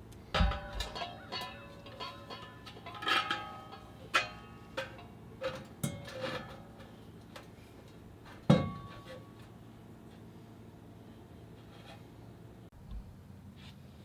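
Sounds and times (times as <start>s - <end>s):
loud metal clank: 0.3s - 6.9s, 8.4s - 9.2s.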